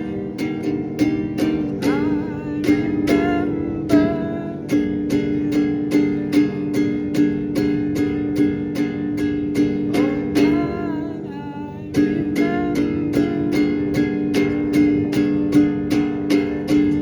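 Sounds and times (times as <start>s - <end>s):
sliding melody line: 0.0s - 6.3s, 9.4s - 17.0s
acoustic guitar strumming: 0.0s - 17.0s.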